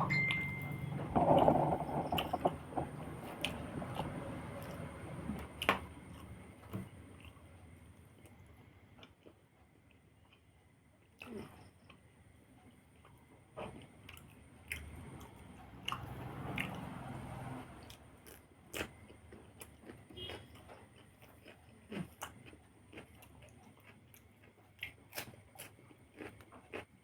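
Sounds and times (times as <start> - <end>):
person chewing food: 17.9 - 27.0.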